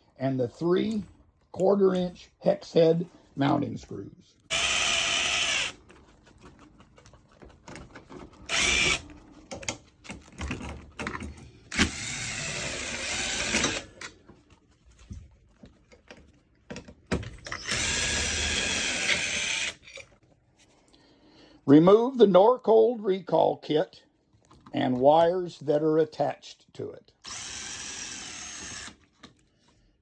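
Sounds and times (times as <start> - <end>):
cordless screw gun running: 4.5 - 5.8, 8.5 - 9.0, 11.7 - 14.0, 17.5 - 19.8, 27.2 - 29.0.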